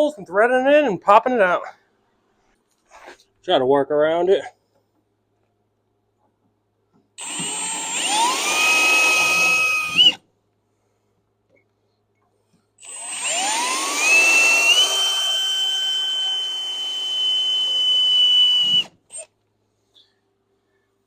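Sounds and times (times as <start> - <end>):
power drill whining: 7.2 - 10.2, 12.8 - 19.3.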